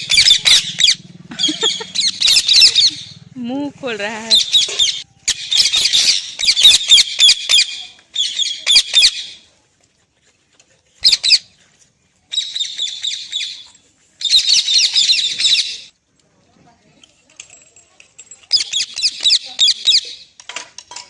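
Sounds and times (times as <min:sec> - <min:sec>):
parrot squawking: 0:00.0 - 0:03.2, 0:04.3 - 0:09.4, 0:11.0 - 0:11.5, 0:12.3 - 0:13.6, 0:14.2 - 0:15.9, 0:18.5 - 0:20.2.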